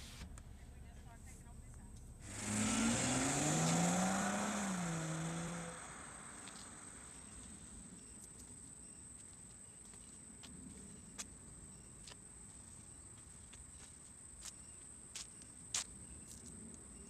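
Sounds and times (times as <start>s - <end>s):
car engine accelerating: 2.1s - 8.2s.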